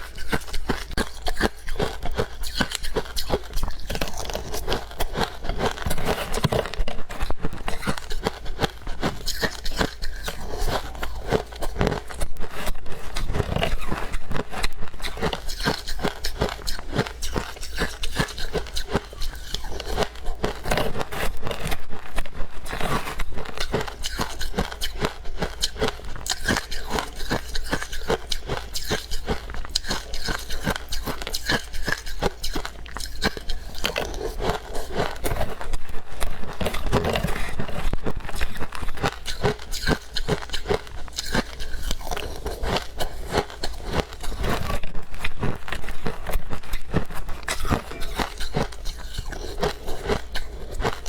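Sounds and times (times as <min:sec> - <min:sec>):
crunching of snow ice: 0:36.4 - 0:44.8, 0:45.4 - 0:51.0.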